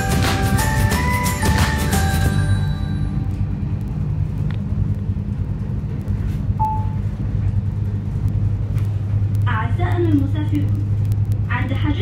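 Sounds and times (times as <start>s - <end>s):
train rumble inside coach: 0.0s - 12.0s
short beep: 6.6s - 7.0s
faint clicks: 8.2s - 11.5s.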